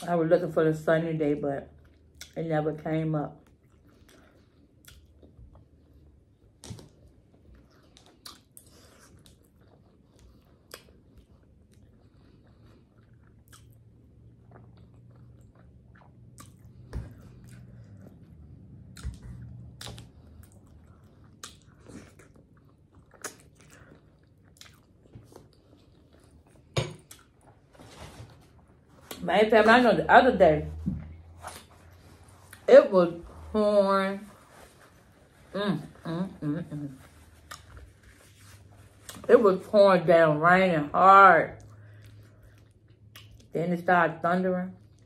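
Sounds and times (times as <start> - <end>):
close chewing and lip-smacking: 1.7 - 2.4, 3.4 - 27.6, 37.3 - 38.2, 41.6 - 43.6.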